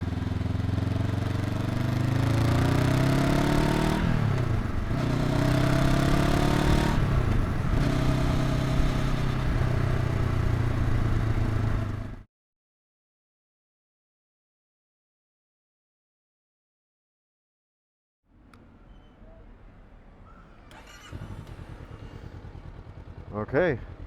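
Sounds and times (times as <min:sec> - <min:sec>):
motorcycle engine accelerating: 0:00.0 - 0:12.3, 0:20.6 - 0:24.0.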